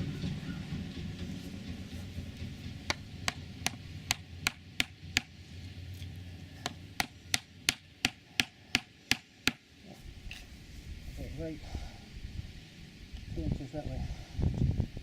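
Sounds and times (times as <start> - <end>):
sharp blows on wood: 2.8 - 5.4, 6.6 - 9.6.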